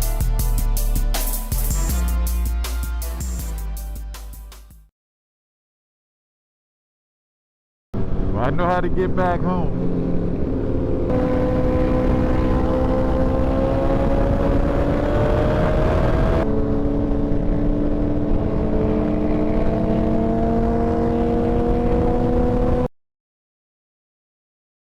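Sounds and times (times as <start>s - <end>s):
motorcycle engine accelerating: 9.7s - 22.9s
wind rushing over microphone: 9.7s - 22.9s.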